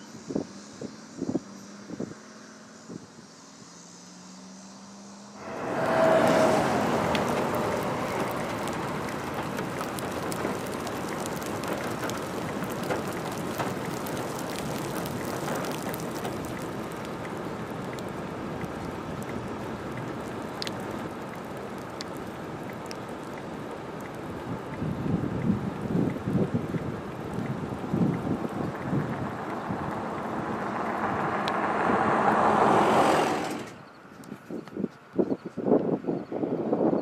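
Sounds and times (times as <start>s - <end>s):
rain: 0.0s - 36.0s
storm wind: 5.3s - 37.0s
raindrops ticking: 5.4s - 33.0s.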